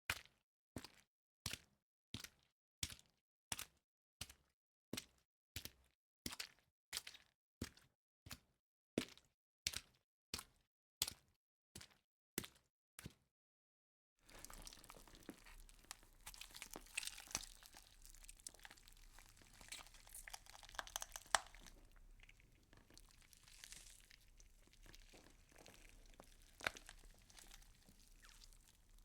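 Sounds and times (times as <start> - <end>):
faint crackling and crinkling: 14.2 - 29.0.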